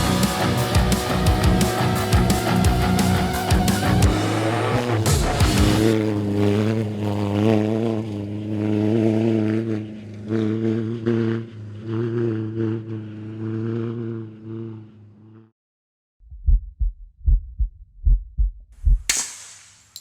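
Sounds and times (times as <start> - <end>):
race car engine running steadily: 0.0 - 13.3.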